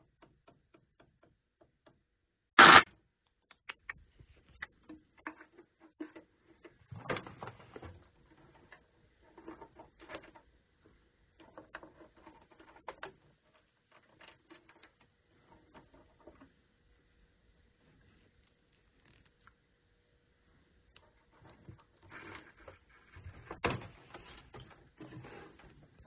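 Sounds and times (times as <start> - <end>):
amplifier crackling and popping: 2.6 - 2.9.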